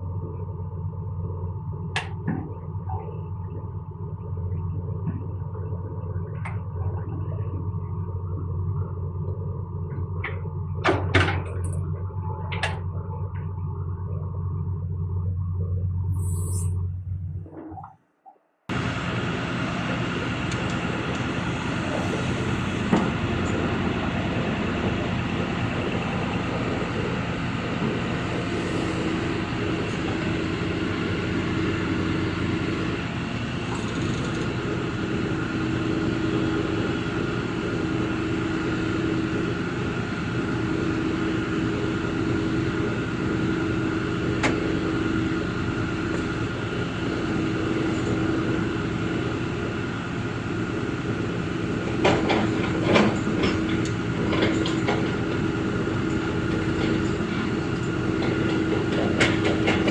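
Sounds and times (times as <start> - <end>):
excavator diesel engine and hydraulics: 0.0 - 59.9
held tone: 16.1 - 16.9.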